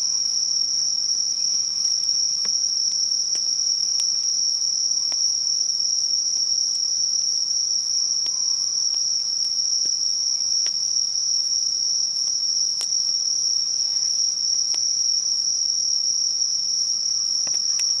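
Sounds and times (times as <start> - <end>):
insects trilling: 0.0 - 18.0
bonfire crackles and pops: 1.8 - 5.7, 8.2 - 11.0, 12.2 - 15.8, 17.0 - 18.0.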